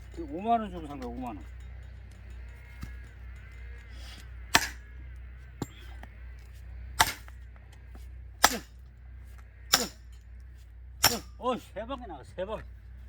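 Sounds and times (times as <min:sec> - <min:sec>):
axe striking a log: 0:04.5 - 0:04.9, 0:05.6 - 0:06.0, 0:07.0 - 0:07.4, 0:08.4 - 0:08.8, 0:09.7 - 0:10.0, 0:11.0 - 0:11.4.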